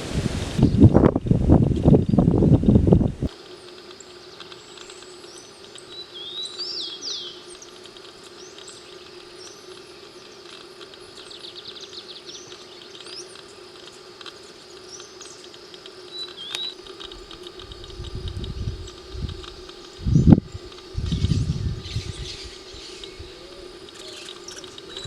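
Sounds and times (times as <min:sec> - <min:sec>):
high insect hum: 0:00.0 - 0:25.0
low steady drone: 0:00.0 - 0:25.0
birds whistling and chirping: 0:04.6 - 0:07.7, 0:16.1 - 0:16.8, 0:20.0 - 0:25.0.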